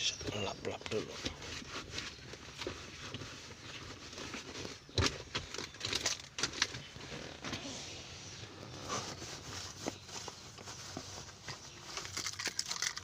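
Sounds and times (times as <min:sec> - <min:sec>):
handling clicks and knocks: 0:04.3 - 0:07.6
cloth wiping a surface: 0:07.6 - 0:11.5.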